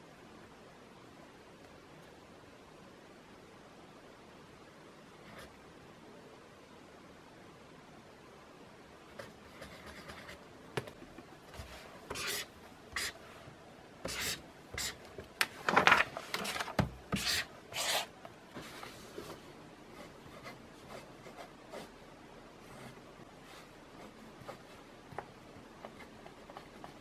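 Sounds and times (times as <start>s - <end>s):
pen writing on paper: 12.1s - 13.2s, 14.0s - 15.0s, 17.1s - 18.1s.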